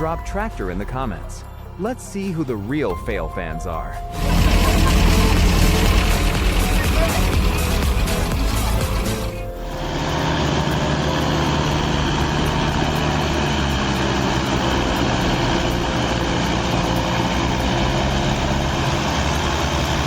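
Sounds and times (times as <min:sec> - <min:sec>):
heavy vehicle engine running: 0:04.1 - 0:20.0.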